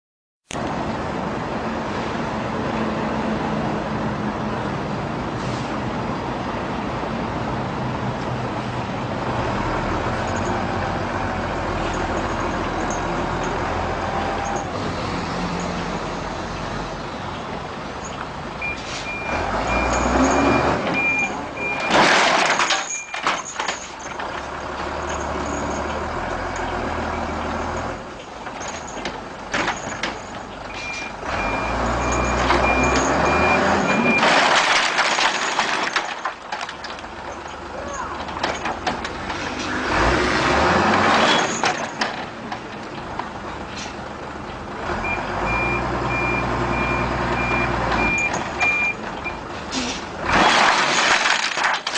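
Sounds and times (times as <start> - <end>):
reversing alarm beeping: 18.6 - 22.0, 30.7 - 34.3, 45.0 - 49.4.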